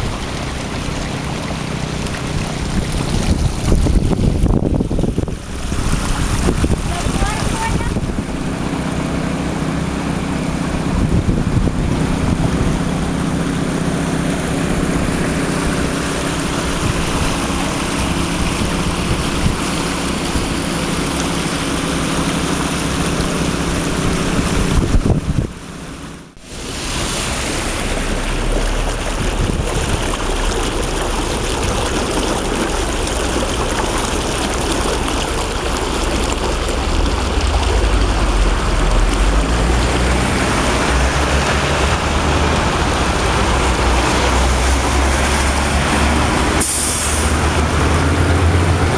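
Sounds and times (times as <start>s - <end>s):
floodwater rushing: 0.0s - 48.9s.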